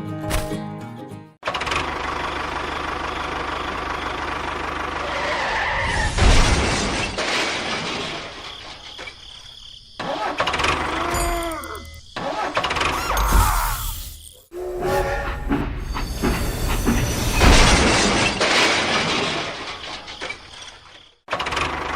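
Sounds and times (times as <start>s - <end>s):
vehicle engine running: 1.6s - 5.4s.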